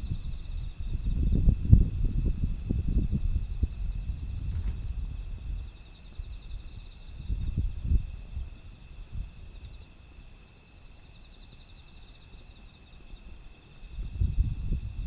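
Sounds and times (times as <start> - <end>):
wind buffeting microphone: 0.0 - 9.8, 13.8 - 15.0
insects chirring: 0.0 - 15.0.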